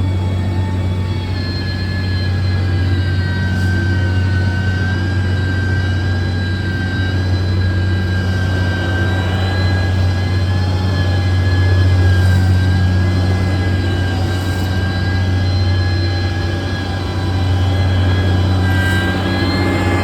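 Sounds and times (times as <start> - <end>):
diesel engine humming with whine: 0.0 - 20.0.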